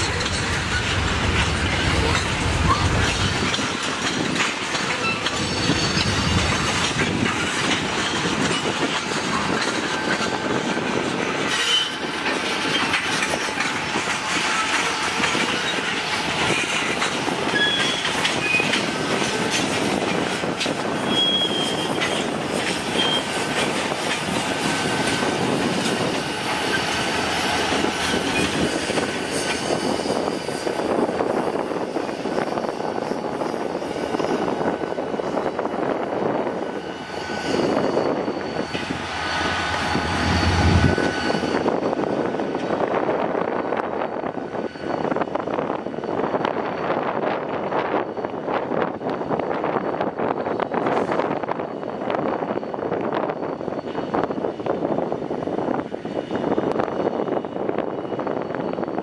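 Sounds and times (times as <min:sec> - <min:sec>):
freight train rumbling: 0:00.0 - 0:59.0
high-pitched wheel squeals: 0:04.9 - 0:06.5, 0:11.5 - 0:13.0, 0:17.2 - 0:19.7, 0:20.8 - 0:23.8.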